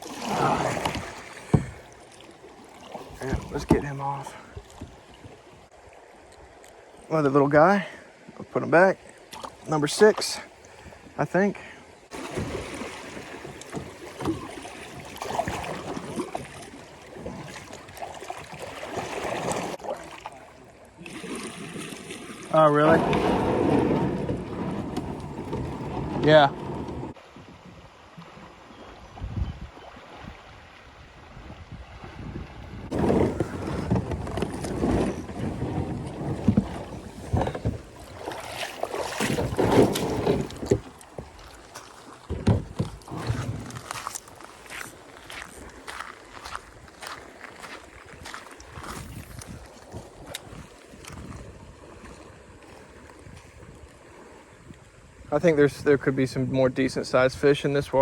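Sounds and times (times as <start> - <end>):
light knocks and splashes: 0.0 - 5.5, 9.2 - 11.1, 12.1 - 30.4, 32.9 - 54.4
river water rippling: 0.0 - 58.0
wind buffeting microphone: 22.8 - 38.5, 45.3 - 56.0.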